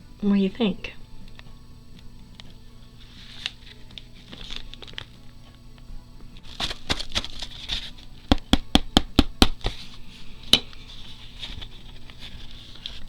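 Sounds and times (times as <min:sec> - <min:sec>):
paper rustling: 0:02.4 - 0:05.6, 0:06.4 - 0:08.2, 0:09.6 - 0:13.0.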